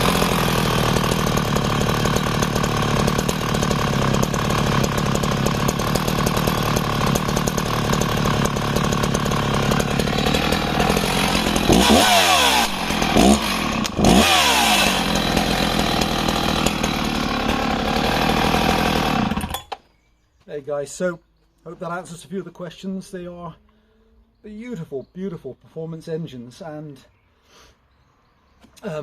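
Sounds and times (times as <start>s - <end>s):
chainsaw idling and revving: 0.0s - 19.8s.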